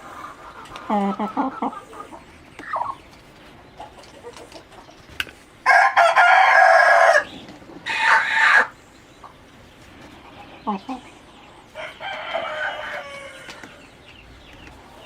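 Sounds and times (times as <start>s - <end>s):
soft chicken clucks: 0.0s - 15.0s
rooster crowing: 5.6s - 7.3s, 11.8s - 13.8s.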